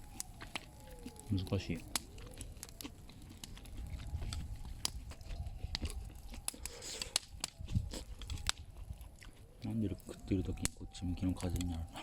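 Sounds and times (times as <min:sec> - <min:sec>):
person chewing grilled meat: 0:00.0 - 0:12.0
wind rumble on microphone: 0:00.0 - 0:12.0.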